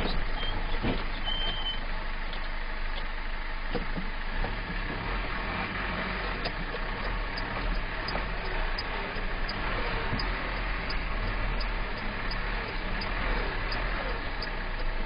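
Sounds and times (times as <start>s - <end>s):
car road and engine noise: 0.0s - 15.0s
faint regular tick: 2.3s - 3.1s, 6.2s - 15.0s.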